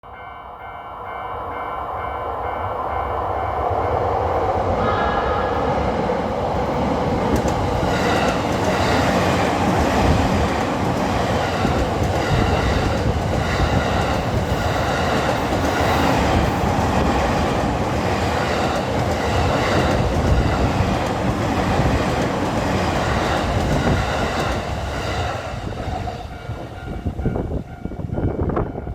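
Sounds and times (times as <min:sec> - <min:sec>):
train wheels clacking over rail joints: 0:07.2 - 0:25.3.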